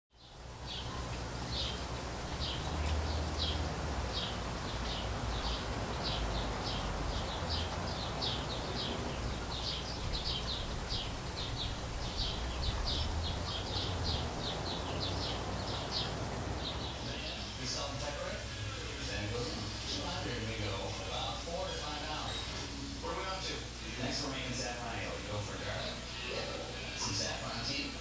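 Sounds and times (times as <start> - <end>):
small bird chirping: 0.1 - 17.5
steady hiss: 0.2 - 28.0.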